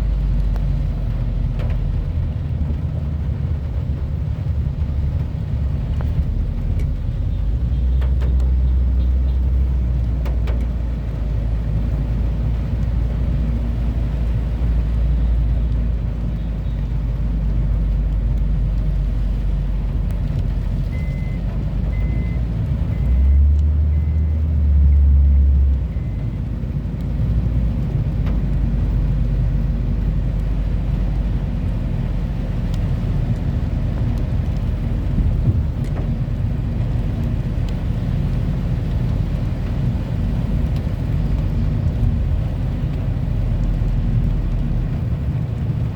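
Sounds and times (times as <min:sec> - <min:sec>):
heavy rain: 0:00.0 - 0:45.9.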